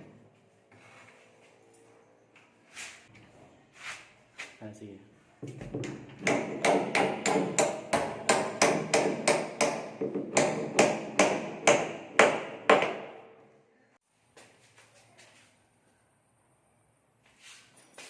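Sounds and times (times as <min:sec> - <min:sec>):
hammer striking wood: 0:05.5 - 0:13.3.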